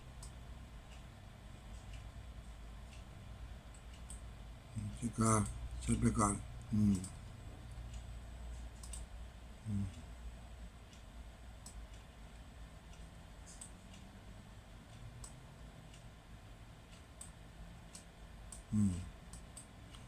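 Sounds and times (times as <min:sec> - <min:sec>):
steady low hum: 0:00.0 - 0:20.0
computer mouse clicks: 0:00.2 - 0:01.1, 0:03.7 - 0:04.3, 0:07.9 - 0:09.1, 0:10.9 - 0:12.0, 0:12.9 - 0:14.1, 0:14.9 - 0:16.0, 0:16.9 - 0:20.0.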